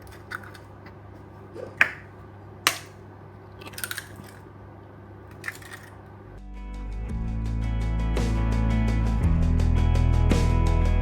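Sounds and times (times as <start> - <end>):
eggs cracking against a bowl: 0.0 - 1.2, 1.8 - 4.5, 5.3 - 6.1
music: 6.4 - 11.0.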